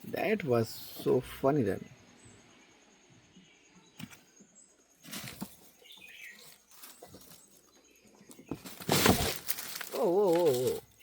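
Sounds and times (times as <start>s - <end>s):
dry palm leaf rustling and scraping: 5.0s - 7.8s, 8.5s - 11.0s.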